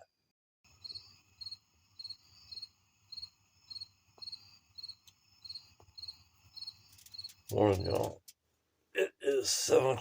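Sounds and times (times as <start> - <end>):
insect chirping: 0.7 - 8.1.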